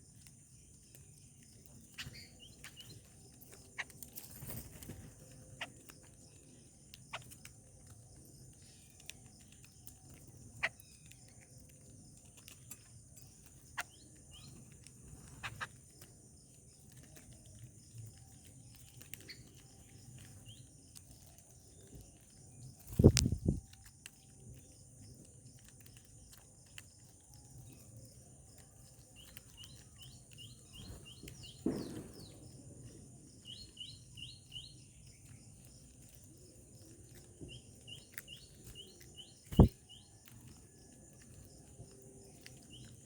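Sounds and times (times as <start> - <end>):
bird chirps: 0.4 - 7.5, 8.2 - 43.0
loud thump and rustle: 31.6 - 32.3.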